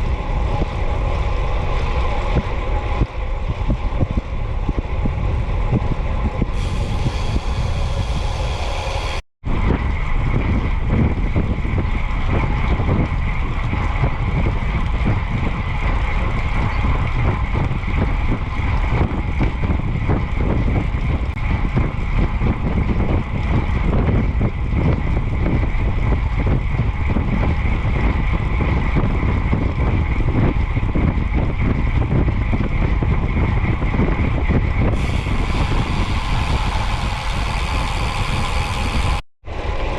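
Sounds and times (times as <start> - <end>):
road noise: 0.0 - 22.4, 32.7 - 39.9
wind buffeting microphone: 0.0 - 39.9.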